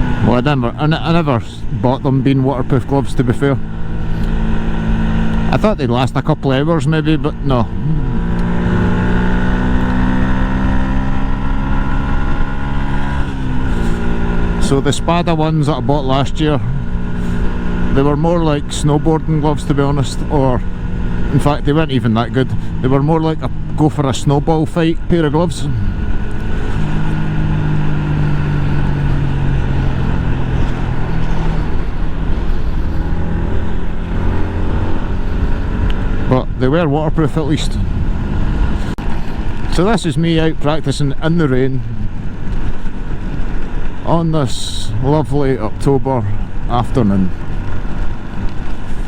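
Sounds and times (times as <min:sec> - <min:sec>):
motorcycle engine cruising: 0:00.0 - 0:49.0
wind and road noise: 0:00.0 - 0:49.0
wind noise: 0:22.2 - 0:40.8.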